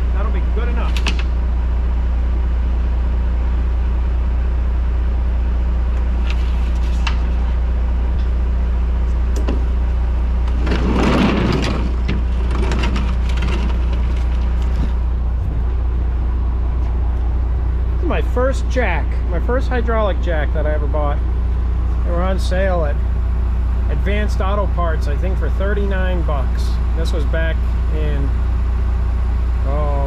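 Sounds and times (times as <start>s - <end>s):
engine humming: 0.0s - 30.0s
sharp clicks and knocks: 0.9s - 1.4s, 9.3s - 9.7s.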